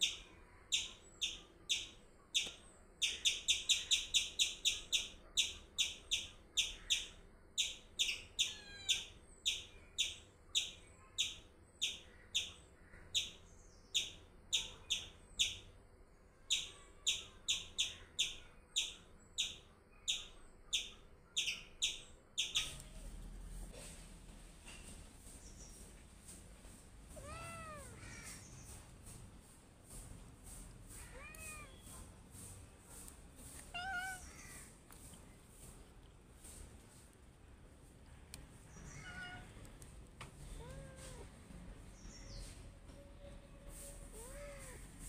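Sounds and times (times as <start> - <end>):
bird chirping: 0.0 - 15.7, 16.5 - 22.8.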